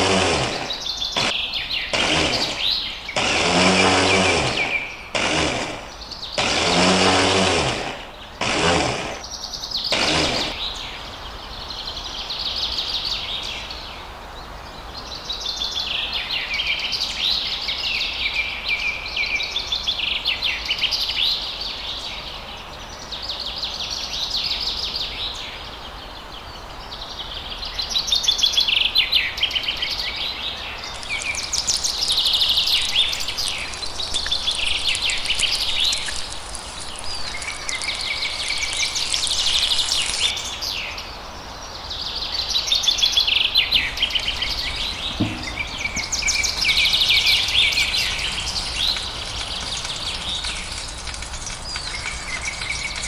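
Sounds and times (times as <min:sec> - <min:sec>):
toy blender motor running: 0:00.0 - 0:01.3, 0:02.0 - 0:09.2, 0:10.0 - 0:10.5, 0:31.0 - 0:40.3
birds chirping: 0:00.0 - 0:12.5, 0:27.8 - 0:53.0.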